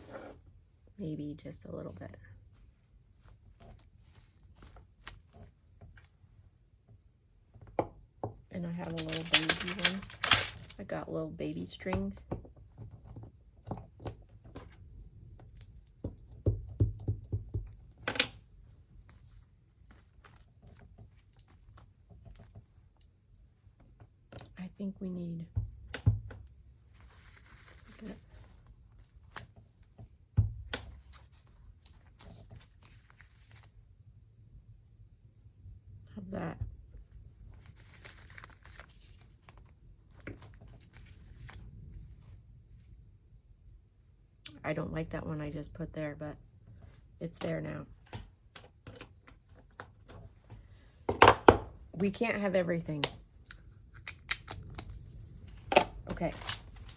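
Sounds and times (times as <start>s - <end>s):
paper rustling and crinkling: 2.6s - 5.6s, 8.7s - 10.9s, 19.0s - 22.6s, 26.9s - 30.0s, 30.9s - 33.8s, 37.4s - 42.9s, 54.8s - 56.9s.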